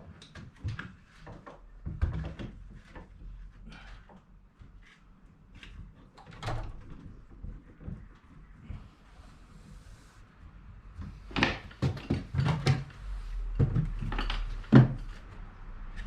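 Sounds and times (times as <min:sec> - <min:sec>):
window frames knocking and scraping: 0:11.0 - 0:15.4.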